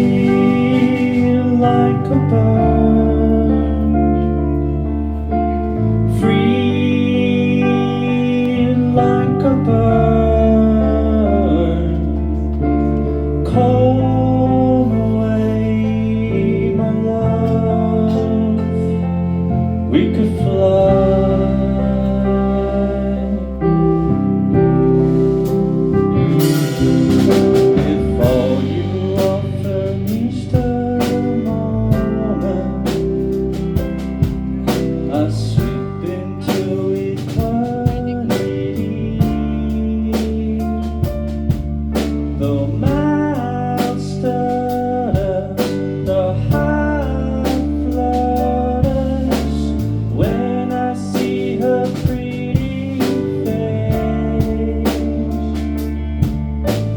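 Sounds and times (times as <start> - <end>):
live band playing: 0.0 - 56.9
person singing: 0.0 - 56.9
drum hits: 25.2 - 29.7.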